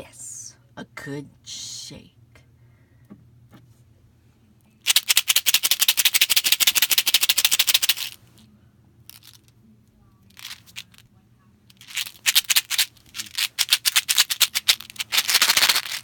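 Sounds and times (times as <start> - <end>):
drink container shaken rattling: 4.8 - 8.2, 10.3 - 11.0, 11.7 - 16.0.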